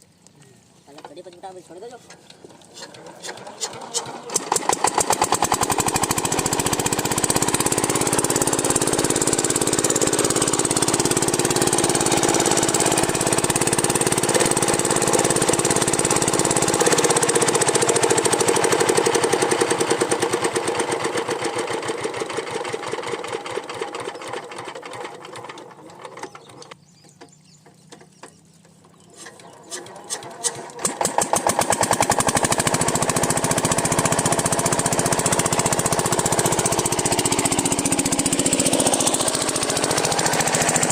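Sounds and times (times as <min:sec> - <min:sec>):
diesel engine running steadily: 0:03.6 - 0:23.0, 0:30.9 - 0:40.9.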